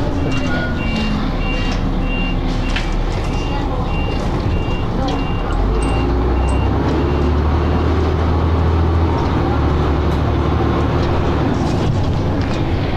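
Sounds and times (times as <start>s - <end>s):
bus engine droning: 0.0s - 12.9s
faint reversing beeps: 0.1s - 8.0s.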